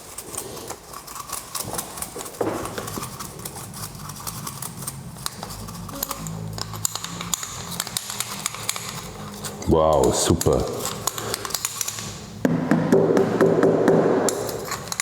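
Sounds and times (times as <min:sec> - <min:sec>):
small metal parts clicking: 0:00.9 - 0:12.3, 0:14.3 - 0:15.0
brush cleaning grinder parts: 0:02.9 - 0:12.1.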